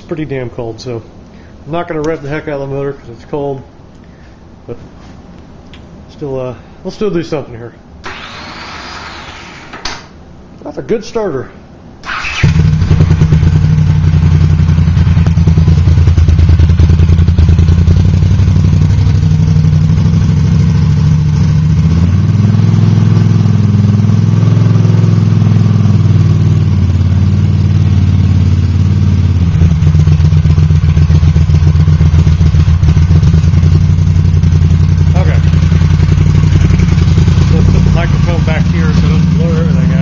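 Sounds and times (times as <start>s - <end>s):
motorcycle engine idling loudly: 12.1s - 40.0s.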